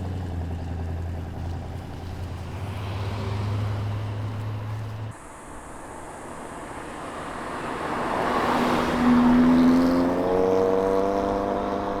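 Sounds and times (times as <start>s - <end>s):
car engine accelerating: 0.0s - 5.2s.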